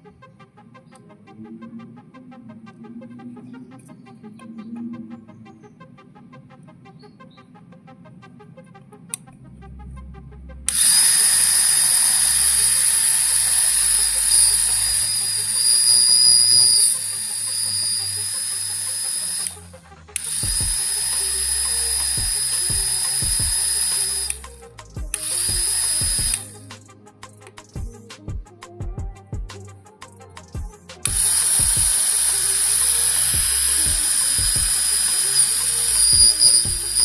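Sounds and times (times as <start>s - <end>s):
electric motor whining: 10.7s - 26.6s, 31.1s - 37.0s.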